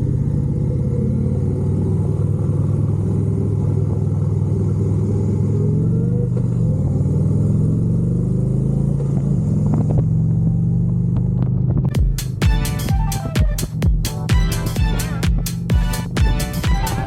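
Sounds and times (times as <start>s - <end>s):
motorcycle engine running: 0.0s - 17.0s
electronic music with sharp beat: 11.9s - 17.0s.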